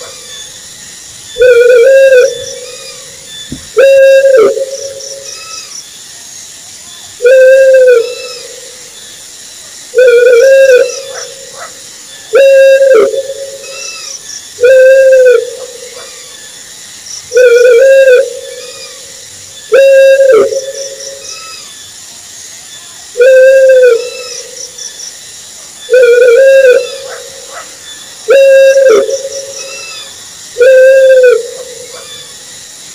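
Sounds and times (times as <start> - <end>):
owl hooting: 1.3 - 5.7, 7.2 - 8.8, 9.9 - 16.4, 17.3 - 21.7, 23.2 - 24.6, 25.8 - 32.4.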